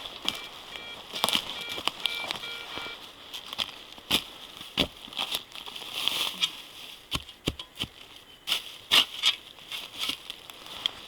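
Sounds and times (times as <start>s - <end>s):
dry leaves and twigs crunching: 0.0s - 11.0s.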